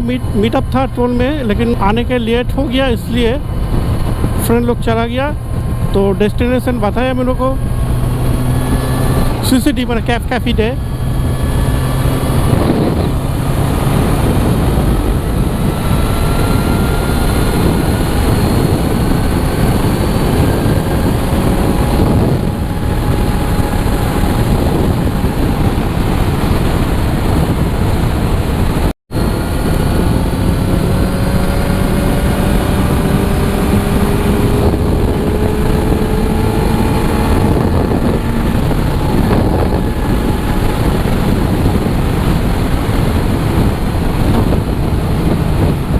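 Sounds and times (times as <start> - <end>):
motorcycle engine running: 0.0 - 45.9
wind rush on microphone: 0.0 - 45.9.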